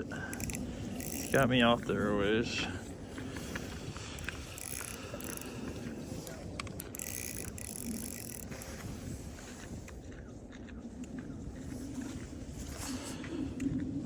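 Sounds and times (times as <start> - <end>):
fishing reel clicking and ratcheting: 0.2 - 1.6, 4.0 - 9.0.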